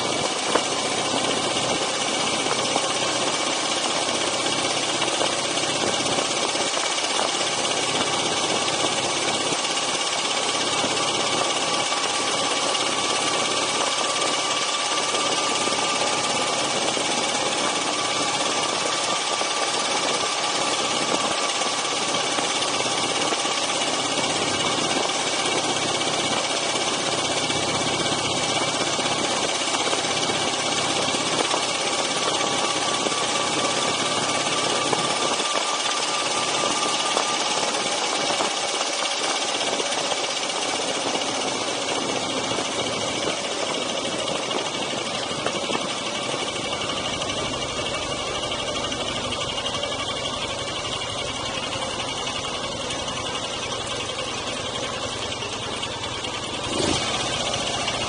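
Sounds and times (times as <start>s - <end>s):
motorcycle engine cruising: 0.0s - 58.0s
road noise: 42.0s - 58.0s.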